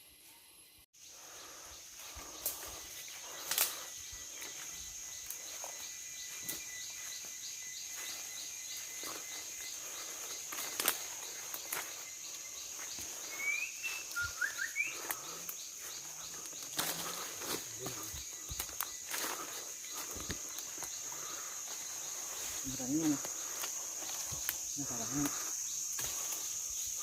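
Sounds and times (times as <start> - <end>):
high-pitched insect drone: 0.0 - 27.0
footsteps on forest floor litter: 1.2 - 27.0
rising bird chirps: 3.4 - 19.1.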